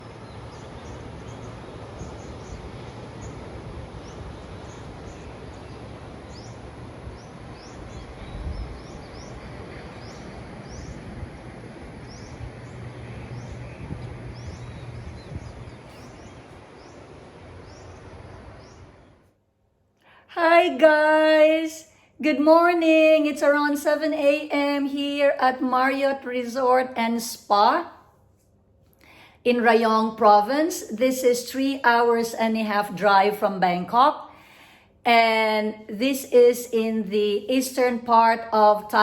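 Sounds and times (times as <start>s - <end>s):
bird chirping: 12.0s - 19.3s.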